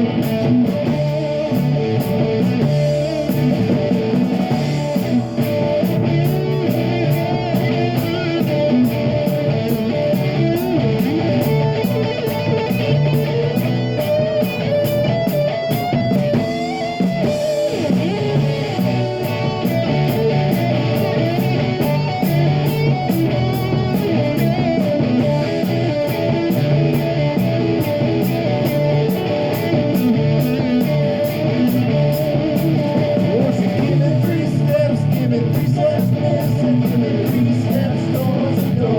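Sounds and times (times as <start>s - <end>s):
drums with cymbal beat: 0.0s - 38.9s
electric guitar: 0.0s - 38.9s
rock band playing: 0.0s - 38.9s.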